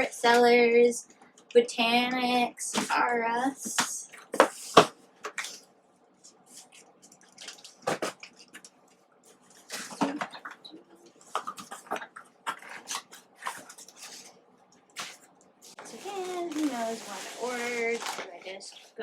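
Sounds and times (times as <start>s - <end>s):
packing material rustling: 11.2s - 19.0s.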